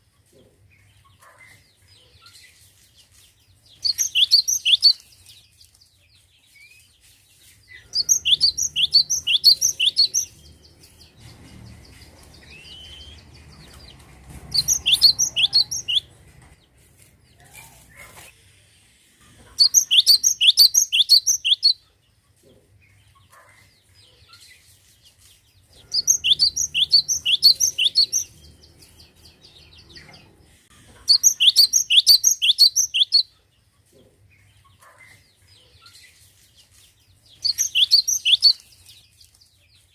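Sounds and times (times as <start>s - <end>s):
bird singing high down-slurred notes: 7.8s - 13.9s, 14.5s - 16.1s, 25.9s - 30.3s.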